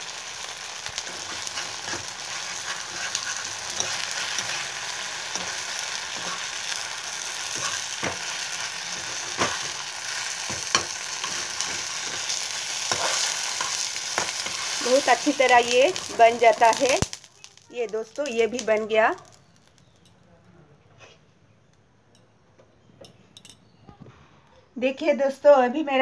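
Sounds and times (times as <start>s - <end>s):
frying in hot oil: 0.0s - 20.2s
metal spatula scraping pan: 1.0s - 16.8s.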